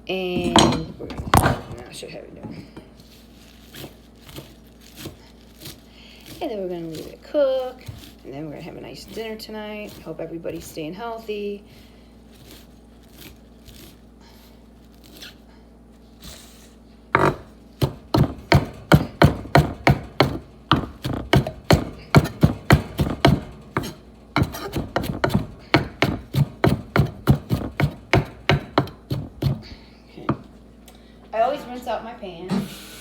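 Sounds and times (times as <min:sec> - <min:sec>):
knife chopping herbs on cutting board: 0:03.8 - 0:11.3, 0:17.2 - 0:30.5.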